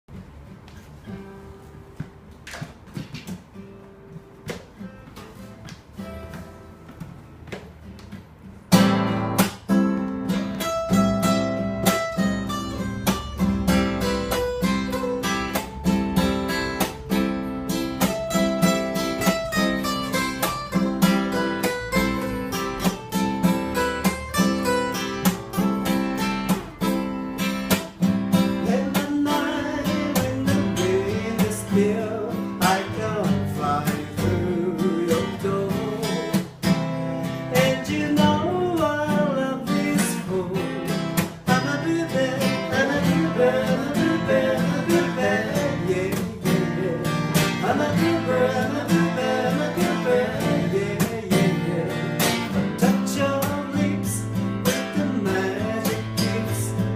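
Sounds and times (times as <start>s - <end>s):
acoustic guitar strumming: 0.1s - 56.9s
person singing: 28.6s - 36.5s, 41.5s - 56.9s.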